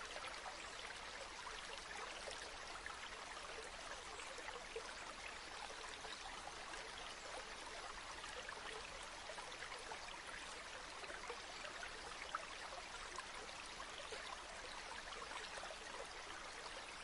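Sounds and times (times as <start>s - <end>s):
river water flowing: 0.0s - 17.0s.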